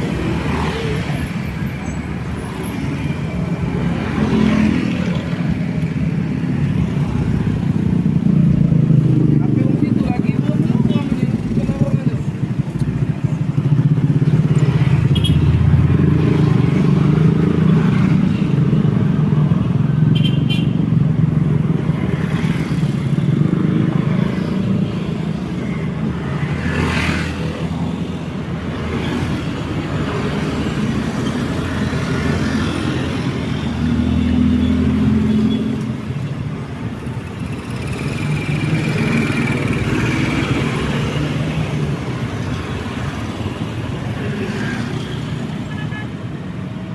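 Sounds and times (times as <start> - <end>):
road traffic passing: 0.0 - 46.9.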